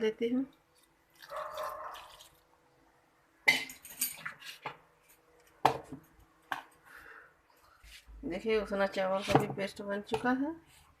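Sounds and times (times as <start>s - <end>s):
kitchen utensils clinking and knocking: 3.5s - 4.5s.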